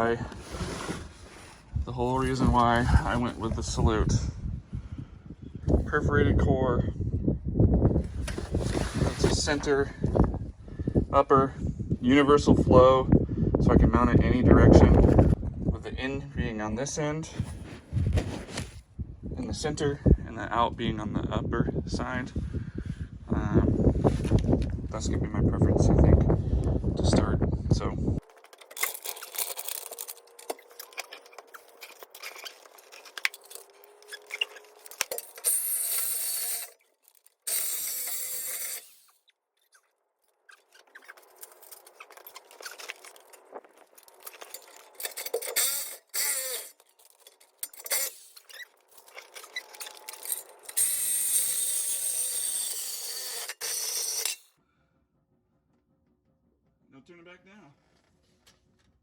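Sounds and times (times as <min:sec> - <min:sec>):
metal tools clinking and clanking: 0:28.2 - 0:39.1, 0:40.7 - 0:54.5
reciprocating saw cutting metal pipe: 0:28.7 - 0:39.2, 0:44.4 - 0:54.5.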